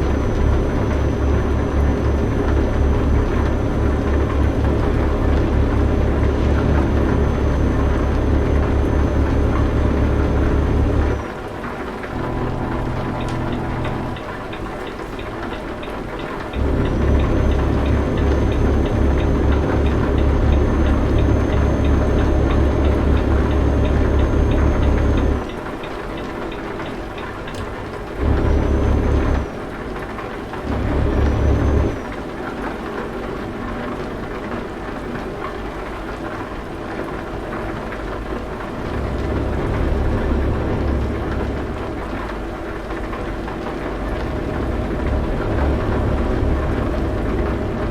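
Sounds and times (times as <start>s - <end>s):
faint high whine: 0.0s - 15.6s
heavy truck engine droning: 0.0s - 26.4s, 27.2s - 29.8s, 30.6s - 32.2s, 37.8s - 47.9s.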